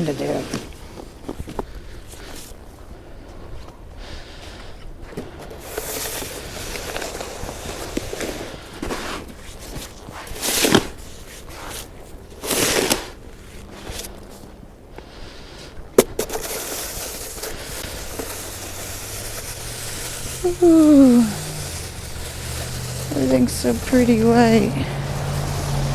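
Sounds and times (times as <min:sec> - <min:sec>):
snow shovel scraping snow: 0:05.6 - 0:14.0, 0:16.2 - 0:25.9.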